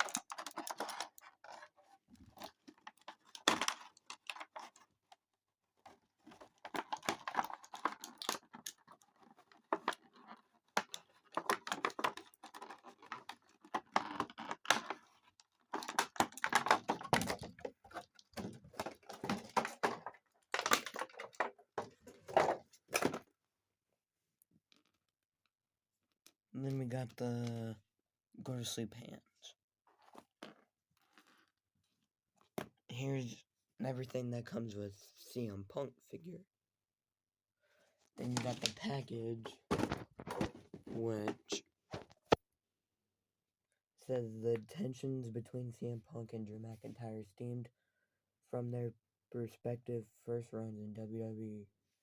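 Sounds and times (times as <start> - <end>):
plastic parts clicking: 0.0 - 4.9, 5.9 - 23.2.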